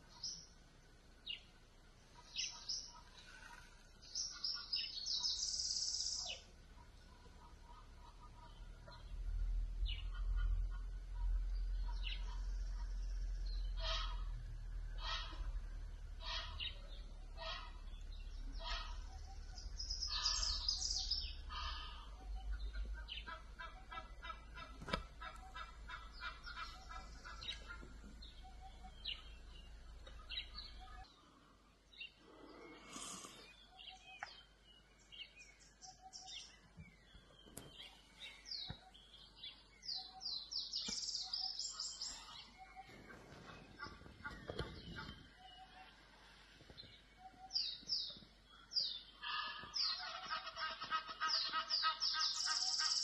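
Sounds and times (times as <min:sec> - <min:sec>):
low steady hum: 0:00.0 - 0:52.9
birds chirping and calling: 0:00.0 - 0:53.0.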